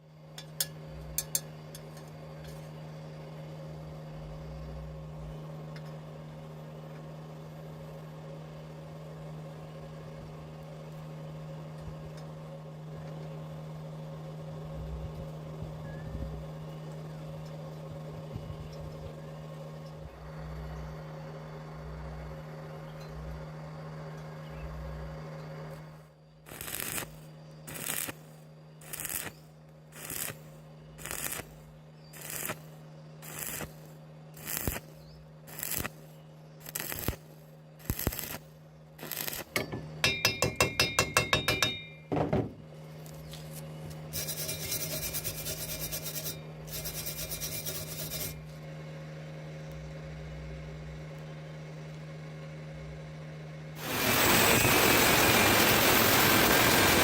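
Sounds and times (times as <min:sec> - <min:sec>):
welding machine humming: 0:23.2 - 0:42.0, 0:42.7 - 0:52.2, 0:52.8 - 0:57.0
scratchy scraping on metal: 0:26.5 - 0:29.4, 0:30.0 - 0:31.6, 0:32.2 - 0:36.0, 0:36.6 - 0:37.2, 0:39.0 - 0:39.5, 0:43.3 - 0:48.6
short welding arc bursts: 0:26.5 - 0:39.6, 0:44.1 - 0:48.4, 0:53.8 - 0:57.0
ringing metal taps: 0:39.6 - 0:42.1.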